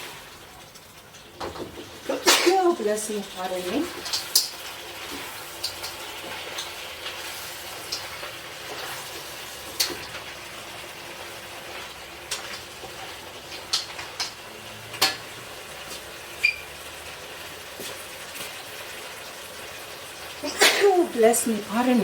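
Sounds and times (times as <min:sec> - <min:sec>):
food sizzling in a pan: 0:00.0 - 0:22.0
spoon clicking against pan: 0:04.0 - 0:04.6.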